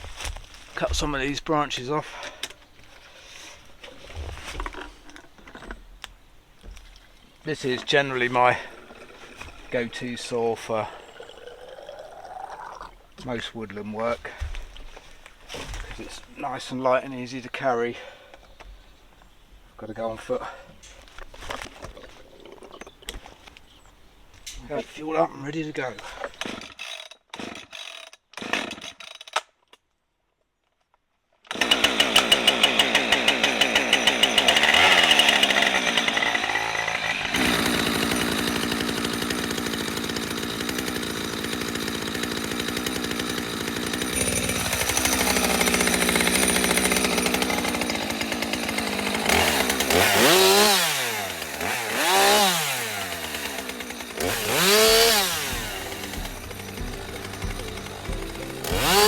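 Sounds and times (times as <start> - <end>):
chainsaw cutting branches: 7.5 - 11.7, 26.0 - 29.2, 31.5 - 59.0.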